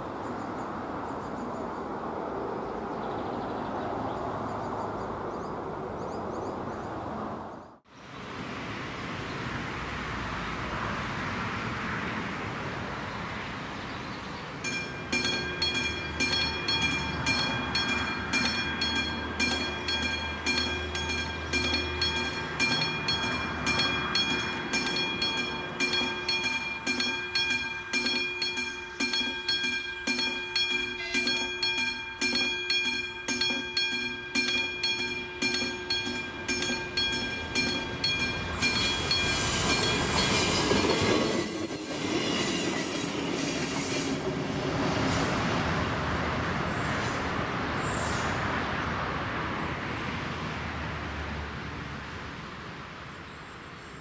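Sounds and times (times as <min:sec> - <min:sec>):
train approaching: 0:08.0 - 0:54.0
level crossing bell ringing: 0:14.6 - 0:41.3
wheel squeal: 0:38.6 - 0:44.2.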